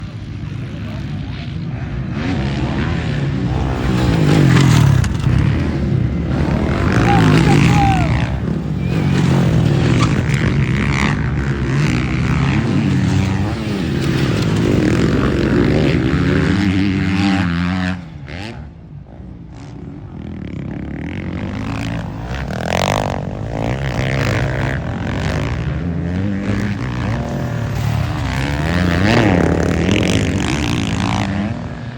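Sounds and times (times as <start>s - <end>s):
dirt bike engines revving: 0.0s - 31.9s.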